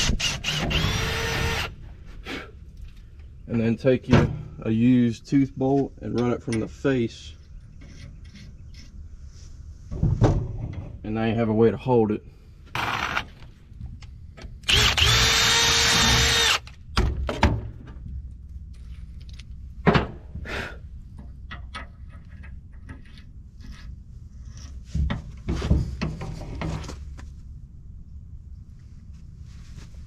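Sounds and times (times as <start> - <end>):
power drill running: 0.0 - 1.8, 14.7 - 16.7
metal clanks and knocks: 9.9 - 11.0, 24.9 - 27.0.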